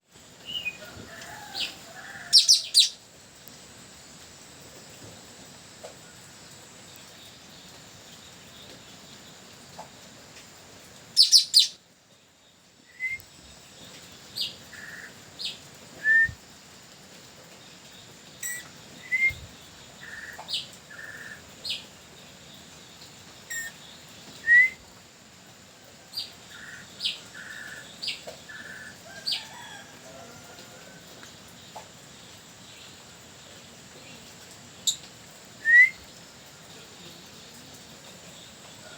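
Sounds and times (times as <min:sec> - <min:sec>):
parrot calling: 0:02.2 - 0:03.0, 0:11.2 - 0:11.8.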